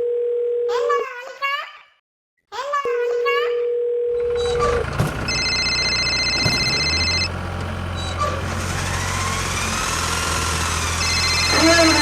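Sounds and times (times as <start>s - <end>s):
engine droning: 4.1s - 12.0s
high beeping tone: 4.3s - 7.3s, 11.0s - 12.0s.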